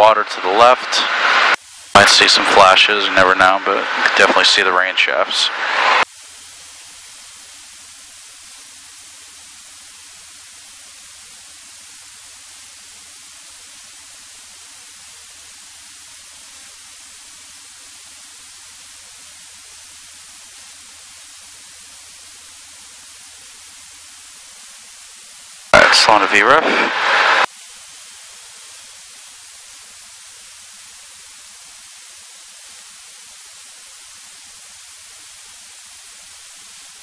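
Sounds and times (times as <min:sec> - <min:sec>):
intercom hiss: 0:00.0 - 0:06.1, 0:25.7 - 0:27.5.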